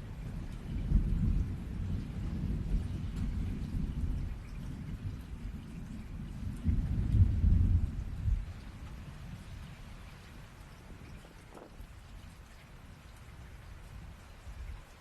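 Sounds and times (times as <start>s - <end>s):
rolling thunder: 0.0s - 12.0s
steady rain: 0.0s - 15.0s.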